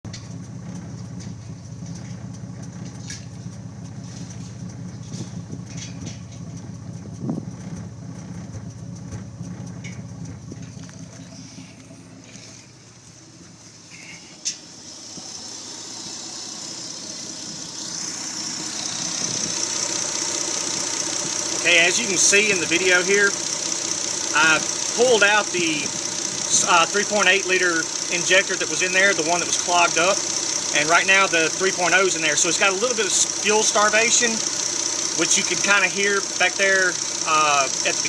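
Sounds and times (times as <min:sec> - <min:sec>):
car engine idling roughly: 0:00.0 - 0:38.0
hiss: 0:13.8 - 0:21.6.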